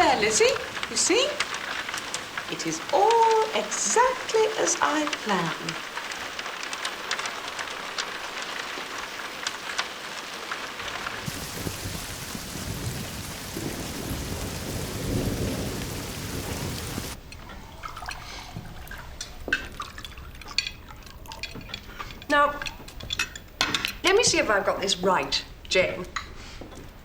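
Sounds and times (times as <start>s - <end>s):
faint clicks: 0.0s - 11.4s
thunder rumble: 0.0s - 19.0s
dripping ticks: 0.0s - 26.4s
steady rain: 0.0s - 27.0s.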